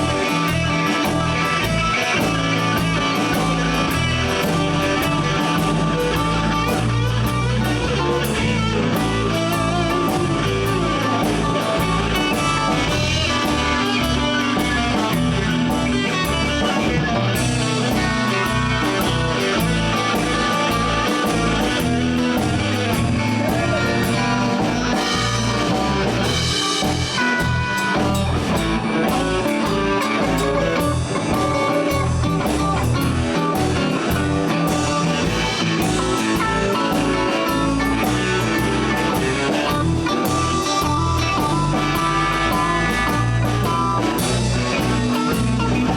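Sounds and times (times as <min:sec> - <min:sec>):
live blues band playing: 0:00.0 - 0:45.9.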